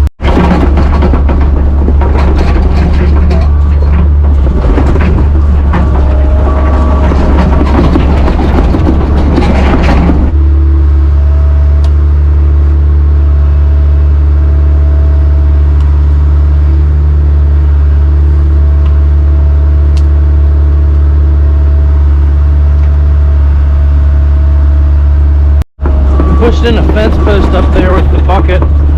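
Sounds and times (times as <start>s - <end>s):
loud rattling clatter: 0.0s - 10.6s, 25.8s - 28.9s
excavator engine running: 0.0s - 28.9s.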